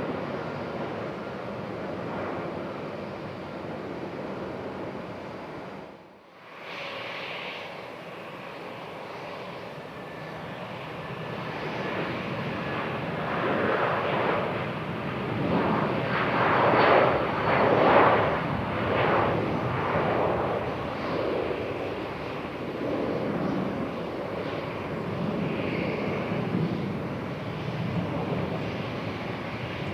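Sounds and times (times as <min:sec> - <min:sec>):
jet engines running: 0:00.0 - 0:29.9.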